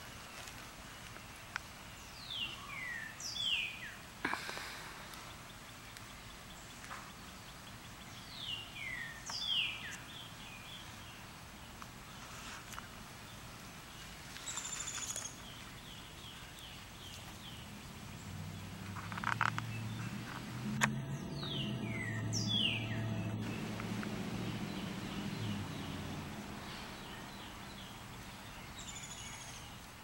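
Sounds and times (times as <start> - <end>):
low hum: 17.7 - 28.6
buzzy bird note: 19.8 - 27.6.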